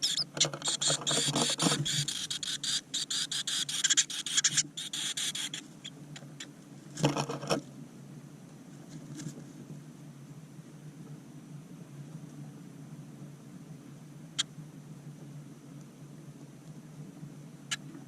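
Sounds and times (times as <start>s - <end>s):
nestlings chittering: 0.0s - 5.7s.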